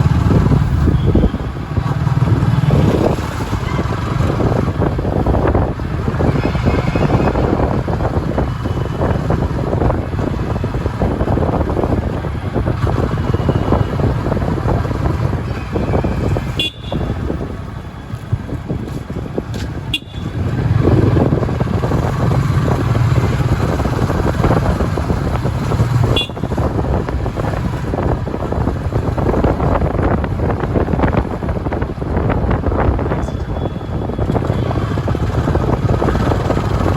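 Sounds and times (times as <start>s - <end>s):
vehicle engines and tyre noise: 0.0s - 36.9s
car horn toots: 15.7s - 17.2s, 19.9s - 20.4s, 26.1s - 26.6s.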